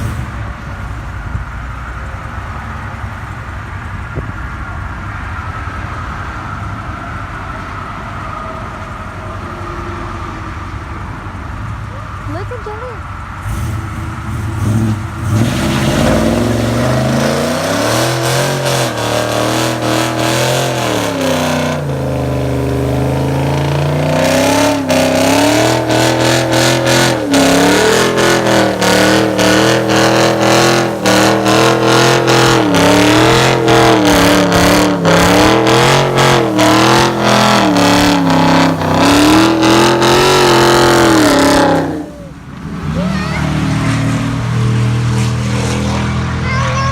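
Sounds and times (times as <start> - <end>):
car engine revving: 0.0 - 1.1, 13.2 - 46.9
rapid engine crackle: 13.4 - 41.9.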